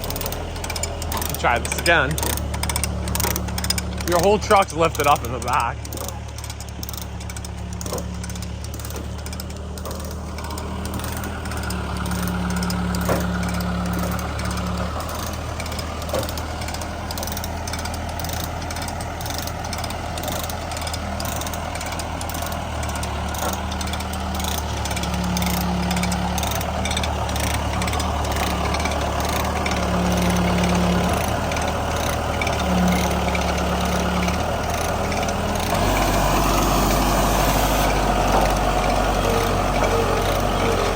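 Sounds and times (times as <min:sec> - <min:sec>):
heavy machine engine running: 0:00.0 - 0:40.9.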